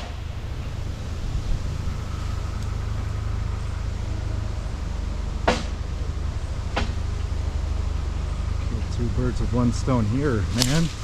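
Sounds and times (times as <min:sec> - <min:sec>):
wind buffeting microphone: 0:00.0 - 0:03.9.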